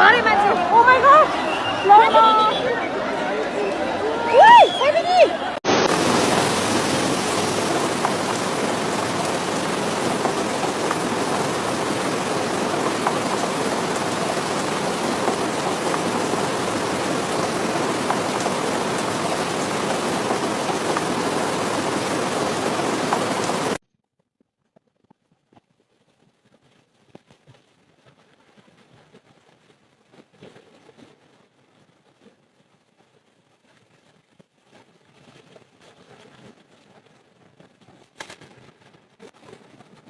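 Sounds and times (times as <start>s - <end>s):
heavy rain falling: 0.0s - 23.8s.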